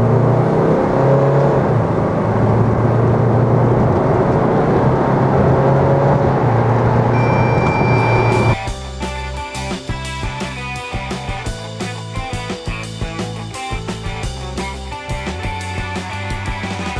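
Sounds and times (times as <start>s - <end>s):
car engine accelerating: 0.0s - 11.6s
thin high tone: 7.1s - 8.6s.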